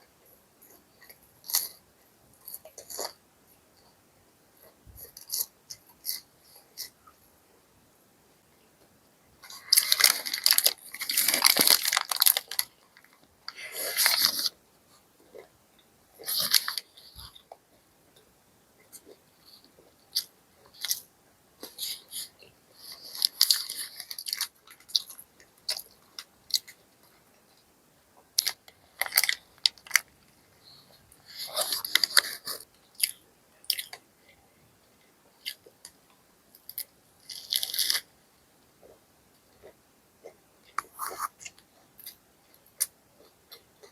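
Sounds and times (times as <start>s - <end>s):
crunching crispy fried food: 9.4s - 14.5s, 28.4s - 30.1s, 36.5s - 38.1s
paper packaging crinkling: 9.4s - 14.5s, 29.0s - 30.1s.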